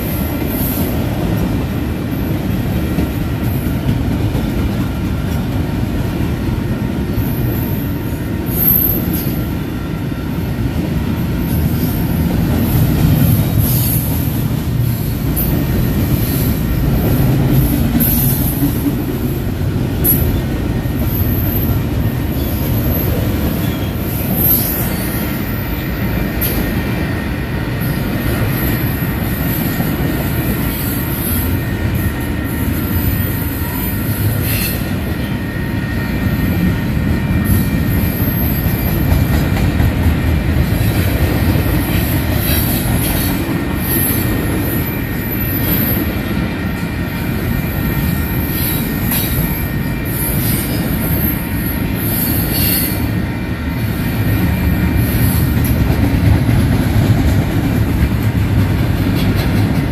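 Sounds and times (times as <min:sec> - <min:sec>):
steel wheels rumbling on rail: 0:00.0 - 0:59.9
high-pitched wheel squeals: 0:48.0 - 0:53.1.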